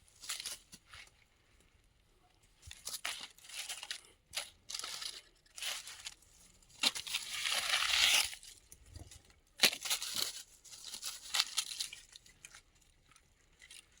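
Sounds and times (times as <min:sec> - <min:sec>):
dry rustling and crinkling: 0:00.0 - 0:14.0.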